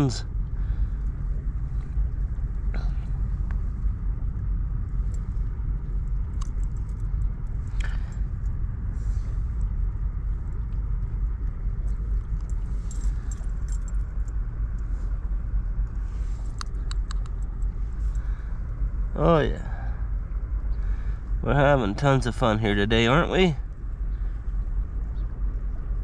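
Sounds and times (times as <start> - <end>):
light clicks and ticks: 6.2 - 8.6, 16.4 - 18.3.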